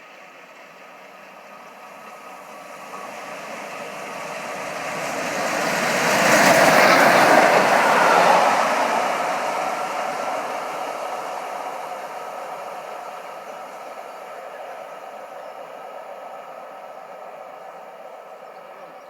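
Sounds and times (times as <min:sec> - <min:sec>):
railway locomotive passing: 0:00.0 - 0:19.0.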